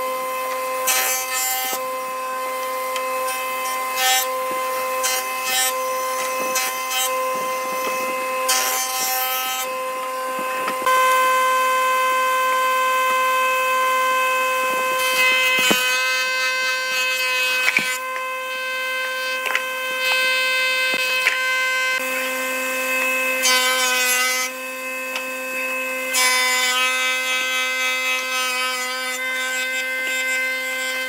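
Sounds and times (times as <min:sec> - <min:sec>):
hand sawing and scraping wood: 0:00.0 - 0:10.9, 0:14.6 - 0:21.4
steady humming tone: 0:00.0 - 0:16.2.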